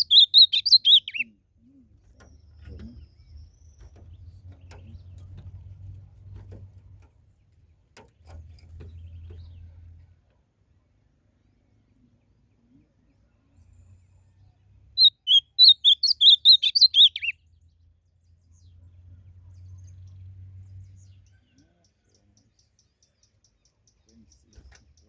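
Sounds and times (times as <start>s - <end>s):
bird singing warbled phrase: 0.0s - 5.2s, 15.0s - 17.4s.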